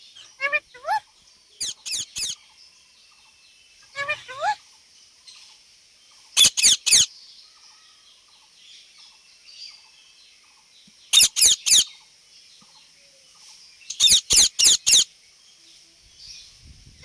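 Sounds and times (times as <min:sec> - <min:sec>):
parrot high-pitched calls: 0:00.2 - 0:01.0, 0:01.6 - 0:02.4, 0:03.8 - 0:04.6, 0:06.4 - 0:07.1, 0:11.1 - 0:11.9, 0:13.9 - 0:15.1.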